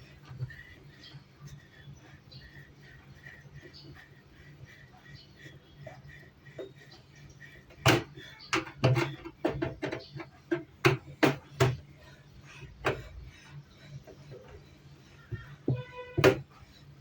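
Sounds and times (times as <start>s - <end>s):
faint low hum: 0.0s - 17.0s
hard objects clicking and knocking: 7.7s - 12.0s, 15.3s - 16.6s.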